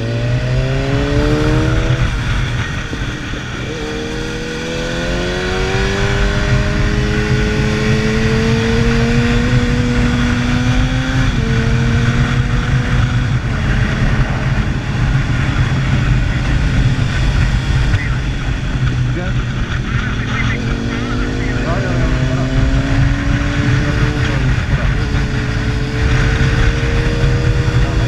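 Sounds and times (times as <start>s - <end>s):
wind and road rush: 0.0s - 28.0s.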